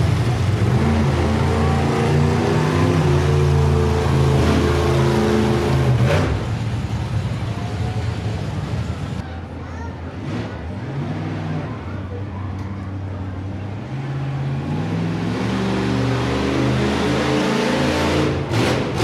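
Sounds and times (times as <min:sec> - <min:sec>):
truck engine revving: 0:00.0 - 0:09.2, 0:13.4 - 0:19.0.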